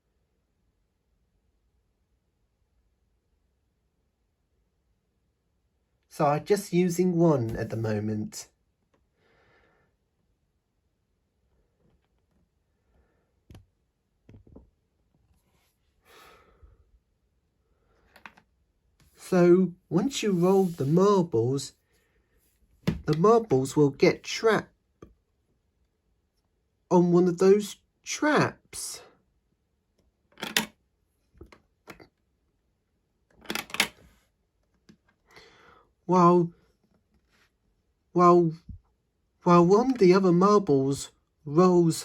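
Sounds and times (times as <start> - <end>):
soft breath: 9.1 - 10.0, 16.0 - 16.9, 35.2 - 35.9.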